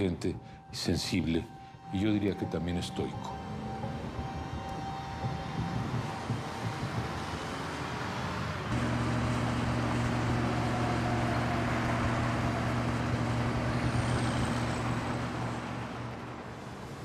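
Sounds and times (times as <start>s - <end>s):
car engine running: 8.7s - 16.3s.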